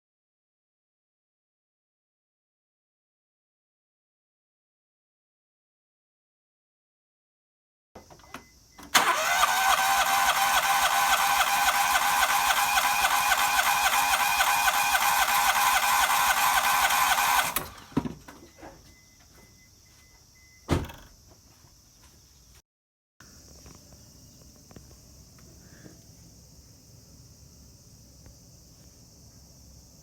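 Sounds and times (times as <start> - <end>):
motor running steadily: 9.7 - 17.8.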